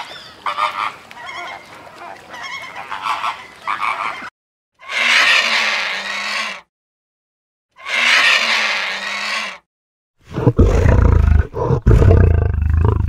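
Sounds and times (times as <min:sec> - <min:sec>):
vulture screeching: 0:04.8 - 0:06.7, 0:07.8 - 0:09.6
lion roaring: 0:10.3 - 0:13.0.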